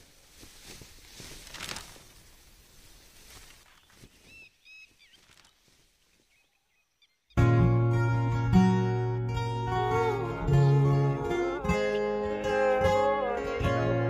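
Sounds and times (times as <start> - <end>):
bird chirping: 3.6 - 7.5.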